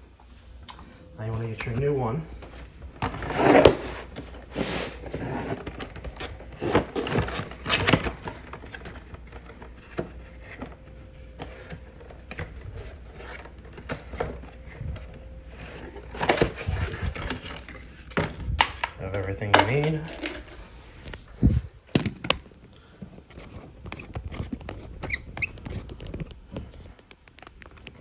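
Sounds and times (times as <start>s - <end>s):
toilet fill valve parts handled: 16.2s - 21.2s.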